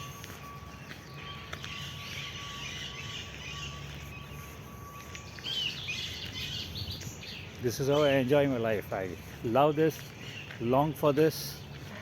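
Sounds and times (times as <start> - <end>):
low outdoor hum: 0.0 - 12.0
small birds chirping: 0.0 - 12.0.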